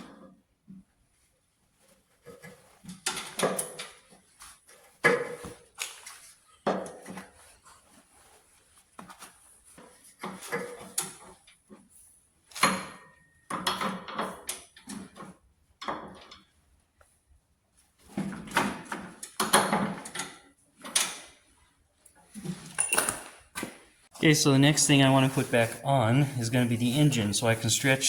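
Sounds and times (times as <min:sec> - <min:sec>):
metal tools clanking: 0:22.7 - 0:23.3.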